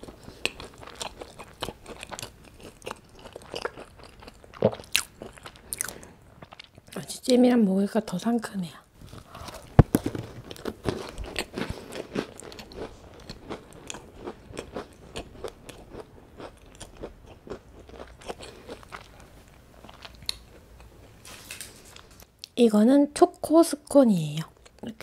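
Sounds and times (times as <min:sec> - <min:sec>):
chewing with small clicks: 0:00.3 - 0:07.0, 0:11.3 - 0:20.9.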